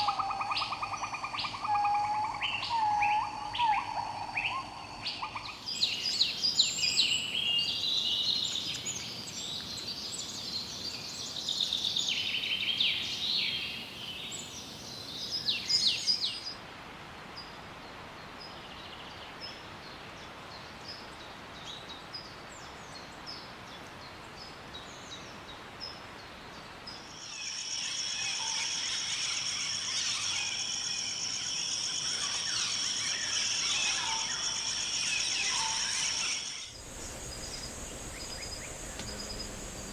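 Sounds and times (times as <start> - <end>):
birds chirping and calling: 27.9 - 39.9
hissing: 36.7 - 39.9.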